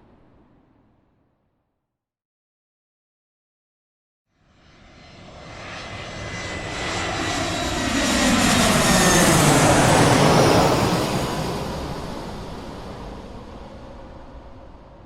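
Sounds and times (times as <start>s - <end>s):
airplane flying past: 4.4s - 15.0s.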